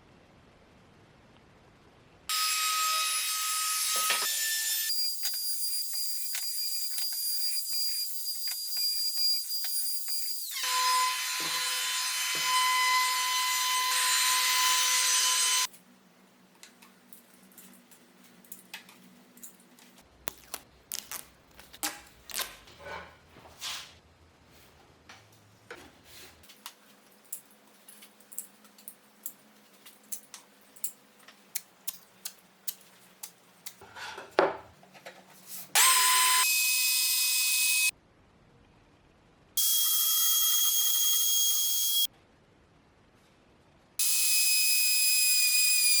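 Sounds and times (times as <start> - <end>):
power tool high whine: 2.3 - 15.7, 35.8 - 37.9.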